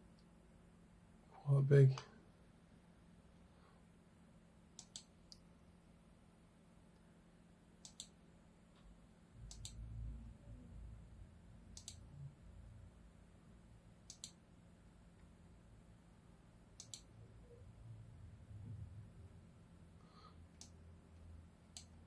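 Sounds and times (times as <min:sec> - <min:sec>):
faint steady hum: 0:00.0 - 0:22.0
computer mouse double clicking: 0:07.8 - 0:08.2, 0:09.5 - 0:09.8, 0:14.1 - 0:14.4, 0:16.8 - 0:17.1
low rumble: 0:09.6 - 0:11.6, 0:17.7 - 0:19.6.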